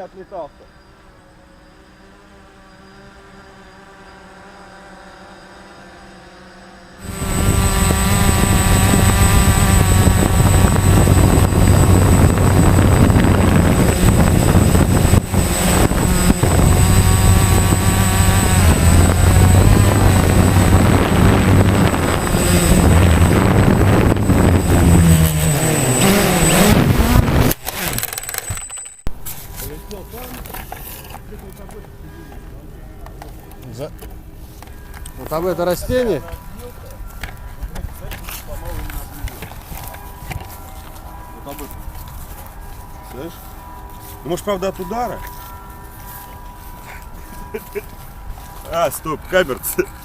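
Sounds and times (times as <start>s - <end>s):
drone propellers whirring: 0.5s - 32.4s, 34.0s - 50.0s.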